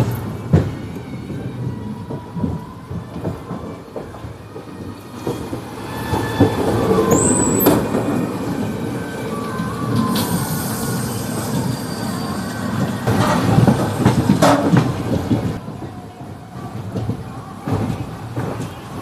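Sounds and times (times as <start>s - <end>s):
train wheel and rail rumble: 0.0s - 19.0s
faint wheel squeal: 5.3s - 7.9s, 9.5s - 13.0s
train sharp clanks: 10.0s - 15.9s.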